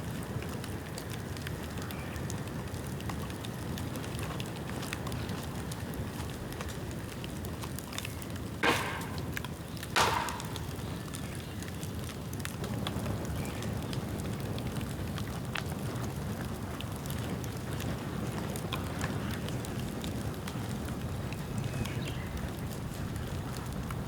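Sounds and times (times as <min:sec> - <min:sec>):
bonfire flames rushing and crackling: 0:00.0 - 0:24.0
bamboo bursting with sharp bangs: 0:08.6 - 0:11.2.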